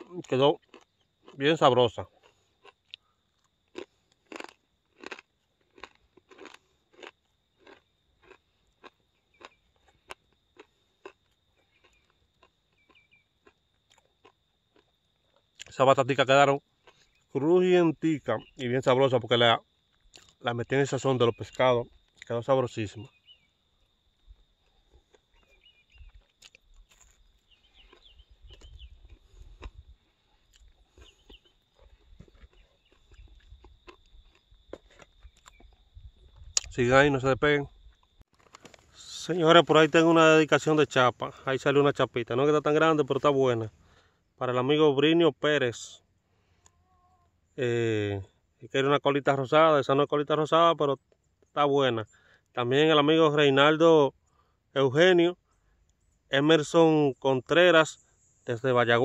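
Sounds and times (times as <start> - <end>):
person chewing crispy food: 0.0 - 1.4, 2.1 - 15.7, 16.8 - 17.3, 20.0 - 20.4, 24.1 - 35.9, 38.2 - 39.0
bird chirps: 9.2 - 9.9, 11.6 - 13.4, 16.9 - 19.0, 20.1 - 23.6, 24.7 - 29.4, 30.2 - 33.5, 35.2 - 35.8.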